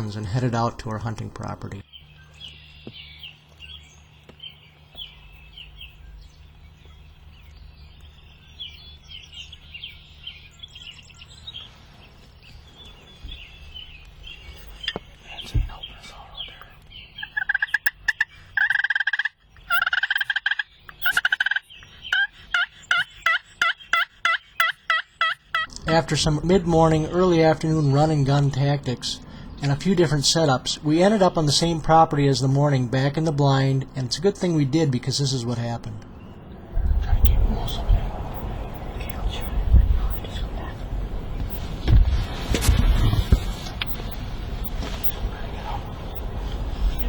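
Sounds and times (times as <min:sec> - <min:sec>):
songbird chirps: 0:00.0 - 0:47.0
turkey gobbling: 0:17.2 - 0:26.1.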